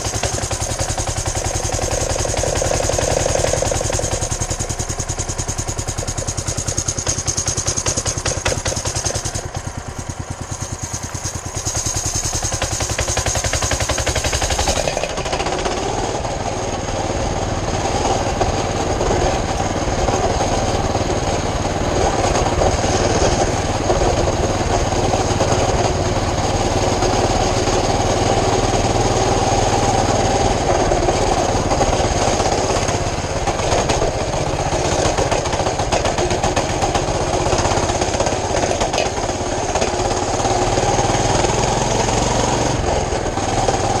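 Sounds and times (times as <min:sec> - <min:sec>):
mini bike engine running: 0:00.0 - 0:44.0.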